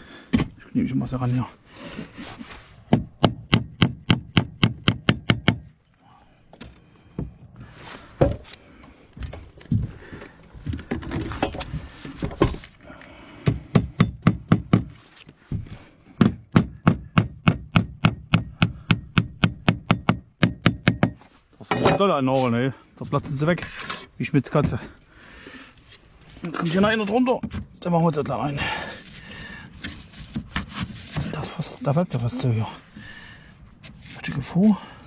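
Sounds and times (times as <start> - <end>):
hammer striking nails: 2.9 - 5.7, 13.4 - 14.9, 16.2 - 21.2.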